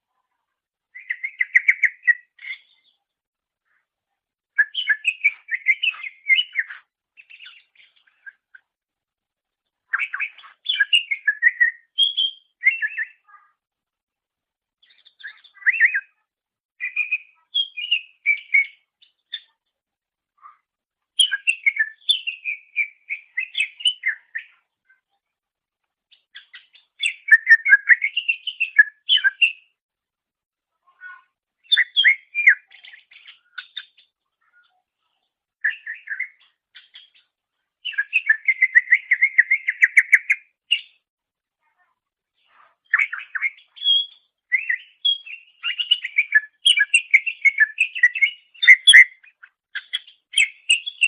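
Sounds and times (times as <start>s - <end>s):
leafbird singing: 1.0s - 2.9s, 4.6s - 8.4s, 16.8s - 19.2s, 21.2s - 24.5s, 26.3s - 29.7s, 37.8s - 40.9s, 42.9s - 51.0s.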